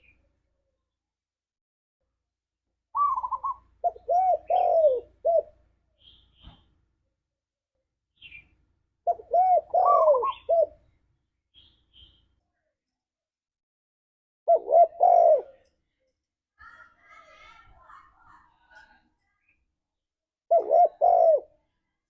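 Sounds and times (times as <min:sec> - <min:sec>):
dove cooing: 0:03.0 - 0:05.6, 0:09.1 - 0:10.8, 0:14.5 - 0:15.7, 0:20.5 - 0:21.6.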